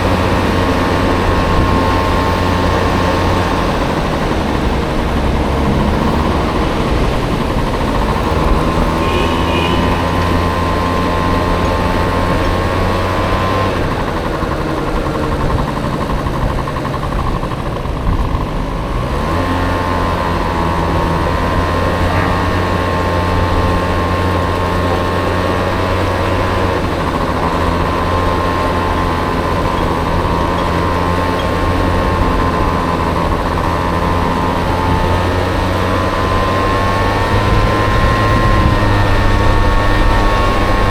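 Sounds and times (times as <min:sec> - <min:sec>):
scooter engine running: 0:00.0 - 0:40.9
wind rumble on microphone: 0:09.8 - 0:40.9.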